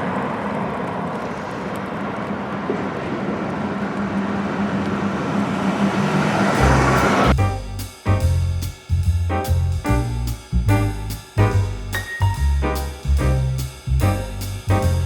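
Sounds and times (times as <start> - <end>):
vehicle rushing noise: 2.5 - 8.0.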